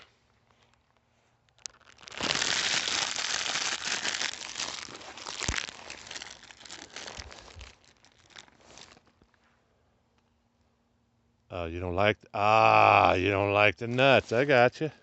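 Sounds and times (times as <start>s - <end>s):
food packaging crinkling: 0.5s - 9.3s.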